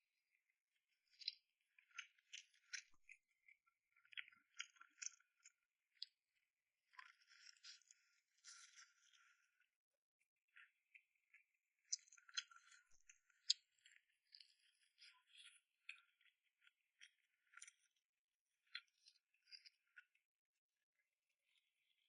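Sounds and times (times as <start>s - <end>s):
wet chewing clicks and smacks: 1.1s - 6.1s, 11.9s - 16.3s.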